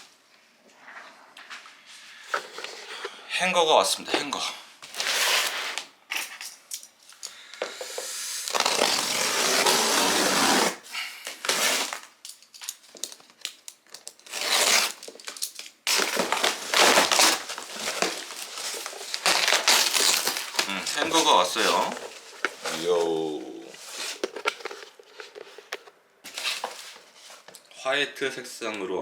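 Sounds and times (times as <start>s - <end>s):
packaging crushing and tearing: 4.8s - 5.8s, 8.4s - 25.7s, 26.3s - 27.1s.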